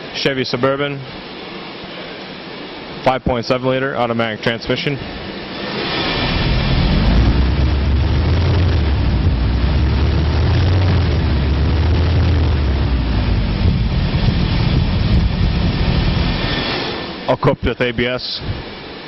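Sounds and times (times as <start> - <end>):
truck engine running: 5.7 - 17.3.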